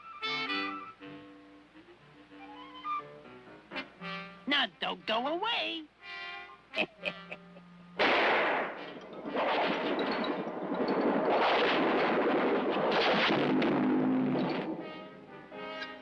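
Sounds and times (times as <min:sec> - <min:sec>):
snow crashing and sliding: 0:08.0 - 0:14.4
loud crash: 0:08.0 - 0:15.2.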